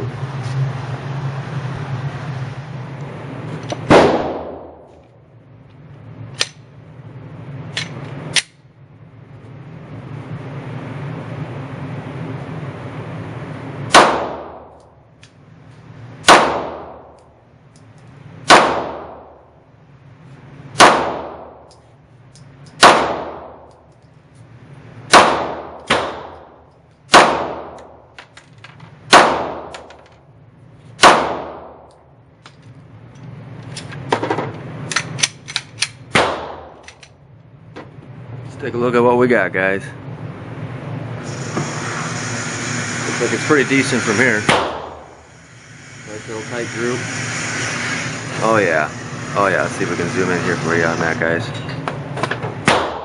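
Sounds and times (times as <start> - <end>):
pistol shots echoing: 3.9 - 4.8, 16.2 - 17.0, 18.5 - 19.3, 22.8 - 23.6, 25.1 - 26.4, 27.1 - 27.9, 29.1 - 29.8, 31.0 - 31.8, 36.1 - 36.8, 52.6 - 53.0.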